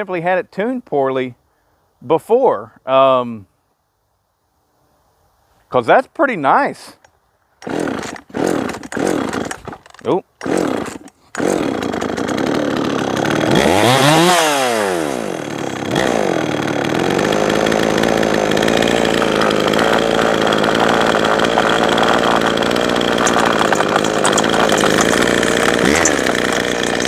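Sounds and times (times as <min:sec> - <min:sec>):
chainsaw revving and running: 0:07.6 - 0:27.0.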